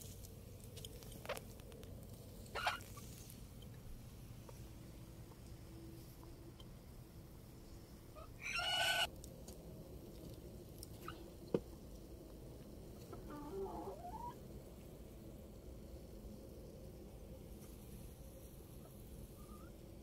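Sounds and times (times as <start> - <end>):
soft wavering bird calls: 8.1 - 9.1, 18.8 - 19.8.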